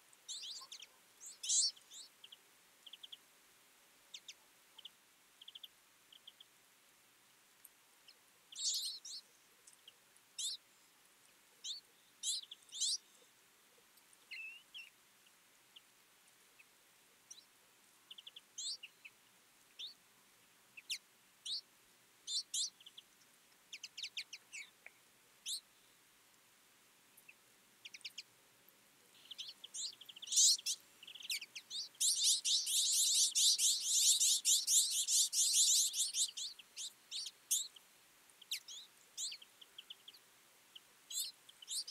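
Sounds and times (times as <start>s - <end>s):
birds twittering: 0.3s - 3.2s, 8.5s - 10.6s, 11.6s - 13.3s, 29.1s - 37.8s, 38.4s - 41.9s.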